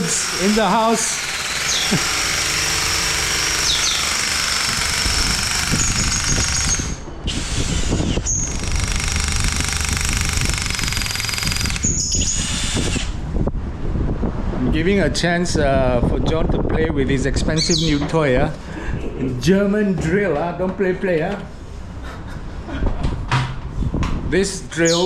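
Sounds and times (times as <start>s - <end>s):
electric drill whining: 0.0s - 13.2s.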